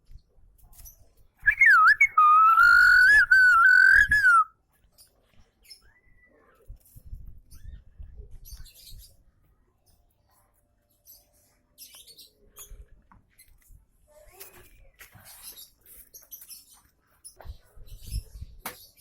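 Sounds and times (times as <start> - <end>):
bird chirps: 1.4 - 4.5
sparrow whistling song: 1.4 - 4.5.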